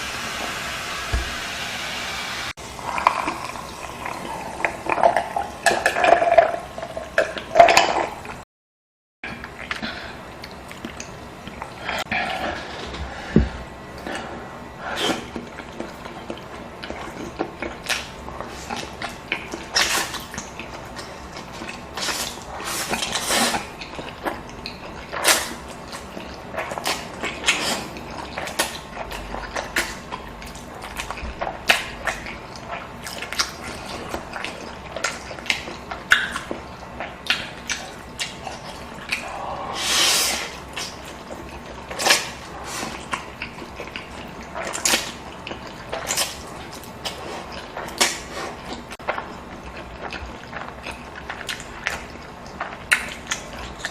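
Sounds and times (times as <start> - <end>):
noisy drawn-in slurp: 0.0 - 8.4, 13.9 - 53.9
wet chewing: 14.9 - 39.6, 40.2 - 53.9.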